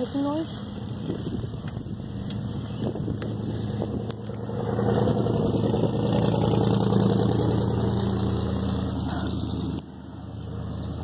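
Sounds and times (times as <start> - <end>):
car driving past: 3.3 - 11.0.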